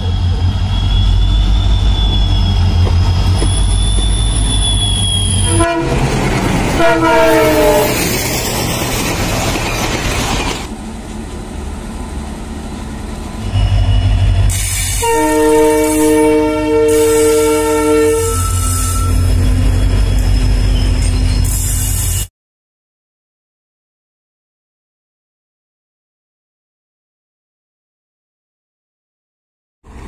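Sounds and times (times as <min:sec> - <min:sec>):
coaches rolling by with rail noise: 0:00.0 - 0:22.3
diesel locomotive engine rumbling: 0:00.0 - 0:22.3
train horn: 0:05.2 - 0:08.2, 0:13.4 - 0:19.3
multi-tone train horn: 0:05.3 - 0:08.2, 0:13.4 - 0:19.4.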